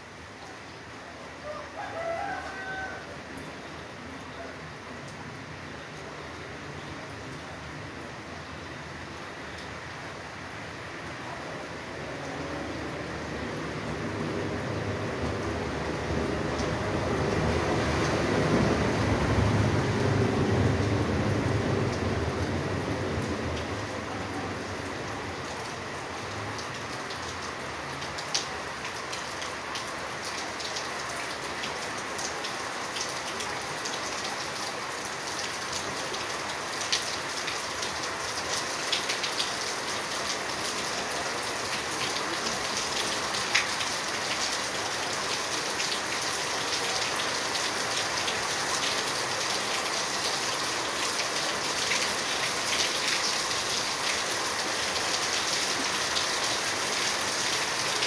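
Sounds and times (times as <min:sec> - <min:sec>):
steady rain falling: 0:00.0 - 0:58.0
raindrop hitting close by: 0:11.7 - 0:58.0.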